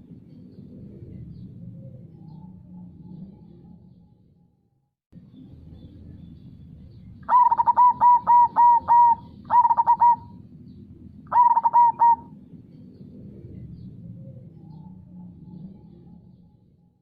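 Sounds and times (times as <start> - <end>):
dove cooing: 7.2 - 10.4, 11.3 - 12.4.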